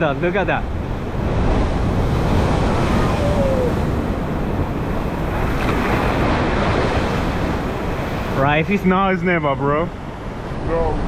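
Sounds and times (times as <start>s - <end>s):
wind buffeting microphone: 0.0s - 8.8s
ocean surf breaking over rocks: 0.0s - 11.0s.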